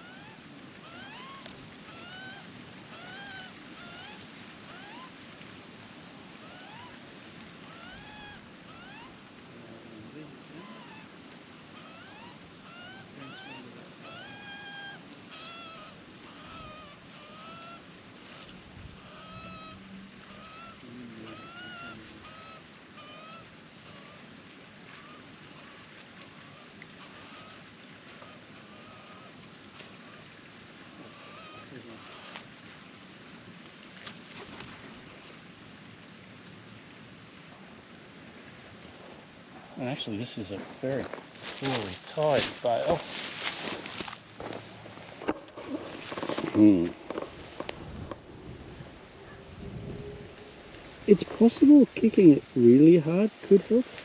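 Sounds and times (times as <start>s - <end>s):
magpie squawking: 0.0s - 5.1s, 7.6s - 9.1s, 11.8s - 24.2s
wind noise: 44.7s - 51.7s.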